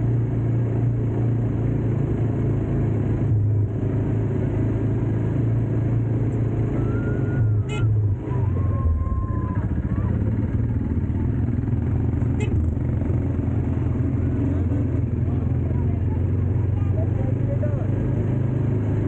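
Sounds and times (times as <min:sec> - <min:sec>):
vehicle engine running: 0:00.0 - 0:19.0
high whistle-like tone: 0:06.8 - 0:09.6.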